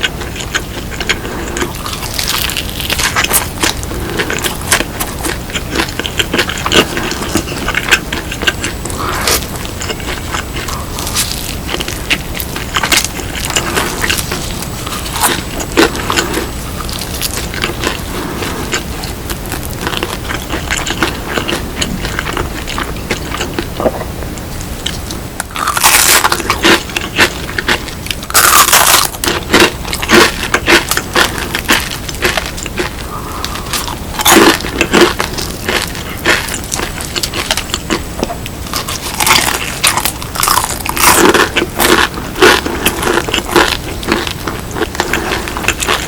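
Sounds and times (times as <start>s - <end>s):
crispy chicken bites and chewing: 0.0s - 23.8s, 24.5s - 46.0s
loud crunches: 24.6s - 46.0s.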